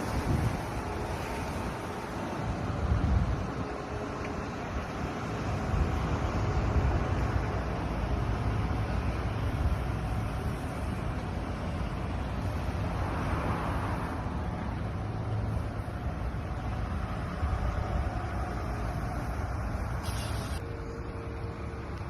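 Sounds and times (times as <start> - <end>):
low vehicle rumble: 0.0 - 22.0.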